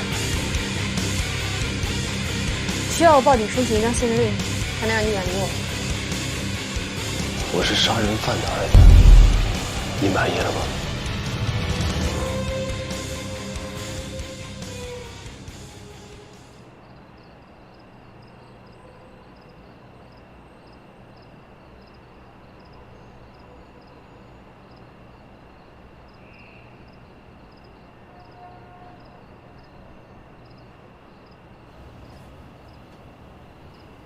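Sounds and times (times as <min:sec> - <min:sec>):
crickets chirping: 0:16.6 - 0:34.0.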